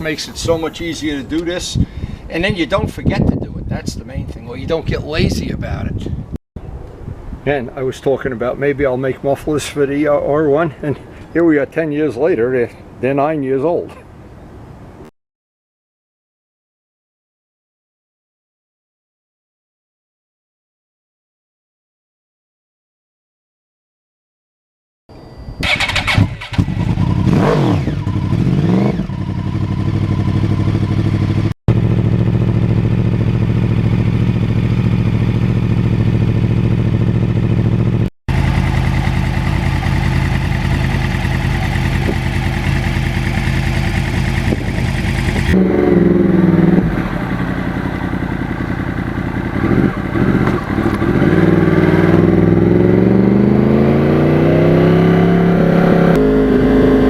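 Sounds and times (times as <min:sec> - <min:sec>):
motorcycle engine revving and idling: 0:25.6 - 0:57.0.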